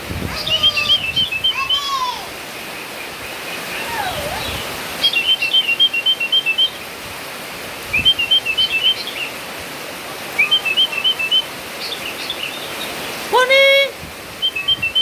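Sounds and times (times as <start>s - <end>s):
heavy rain hissing: 0.0s - 15.0s
bird chirping: 0.4s - 1.9s, 2.6s - 6.9s, 8.0s - 9.4s, 10.4s - 13.2s, 14.4s - 15.0s.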